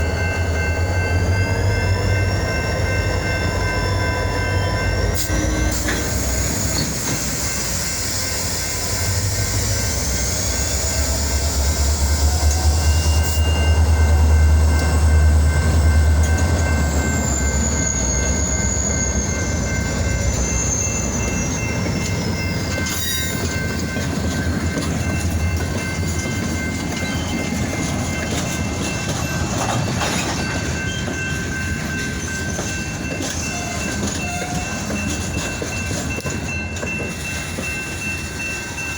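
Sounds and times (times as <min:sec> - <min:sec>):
high wavering wheel squeal: 0:04.4 - 0:23.6
train wheel clatter: 0:05.1 - 0:38.9.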